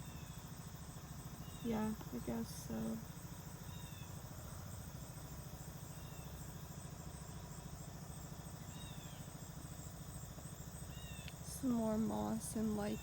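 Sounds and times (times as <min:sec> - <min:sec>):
faint high insect trill: 0:00.0 - 0:13.0
bird chirp: 0:01.4 - 0:03.0, 0:03.6 - 0:04.2, 0:10.8 - 0:13.0.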